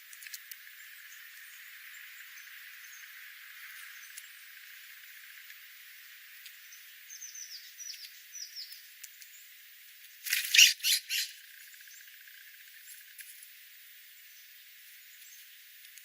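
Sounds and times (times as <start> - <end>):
birds high falling chirps: 10.3 - 11.4
bird harsh squawks: 10.4 - 11.4.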